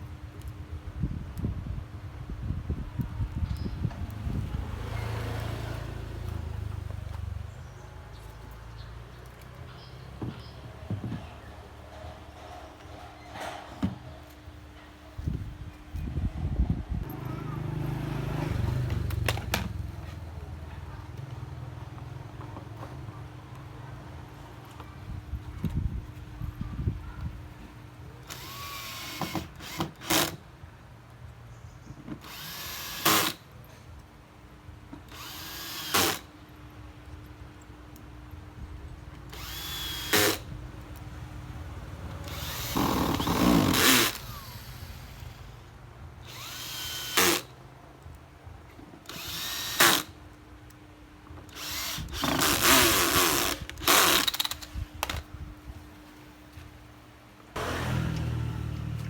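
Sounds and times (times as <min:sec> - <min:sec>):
electric drill whirring: 0:28.3 - 0:30.4, 0:32.2 - 0:33.4, 0:35.1 - 0:36.3, 0:39.3 - 0:40.5, 0:42.2 - 0:45.6, 0:46.3 - 0:47.5, 0:49.1 - 0:50.2, 0:51.5 - 0:55.2.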